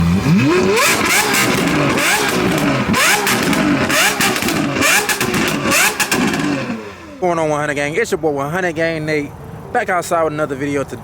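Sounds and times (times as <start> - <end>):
car engine revving: 0.0 - 7.5.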